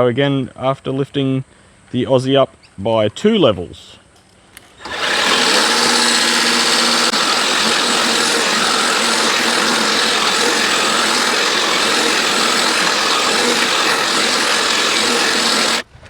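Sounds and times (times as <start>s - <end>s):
lawn mower cutting grass: 4.8s - 15.8s.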